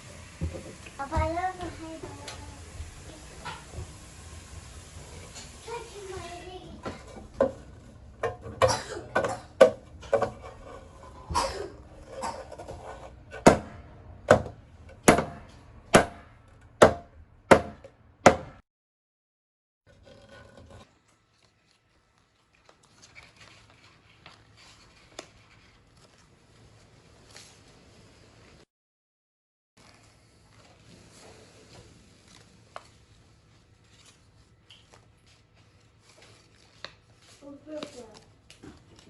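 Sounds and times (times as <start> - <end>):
faint room sounds: 20.0 - 28.7, 29.8 - 39.0.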